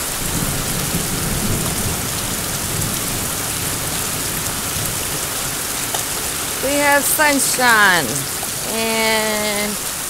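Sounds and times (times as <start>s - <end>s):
thunder rumbling: 0.0s - 8.7s
heavy rain on a roof: 0.0s - 10.0s.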